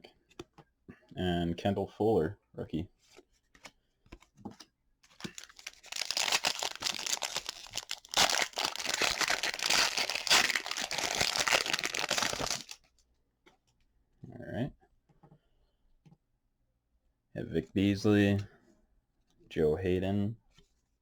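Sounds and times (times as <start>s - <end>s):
cards ticking: 5.2s - 12.8s
foil wrapper crinkling and tearing: 5.2s - 12.8s.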